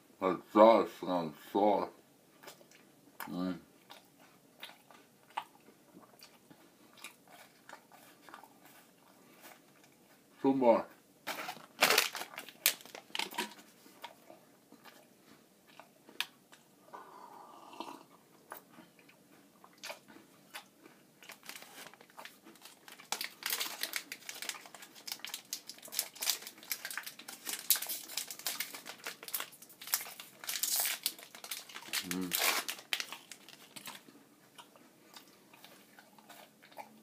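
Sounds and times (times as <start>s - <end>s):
person chewing crunchy bar: 2.4s - 10.2s, 11.2s - 37.0s.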